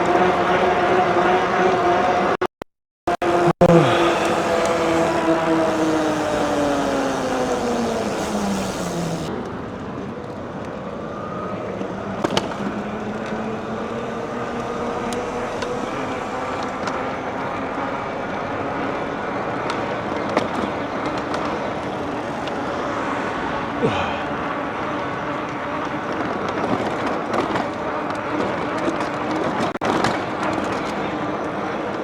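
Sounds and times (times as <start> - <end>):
electric motor hum: 3.2 - 9.3, 12.4 - 18.0
tyre and wind rush: 3.2 - 9.4.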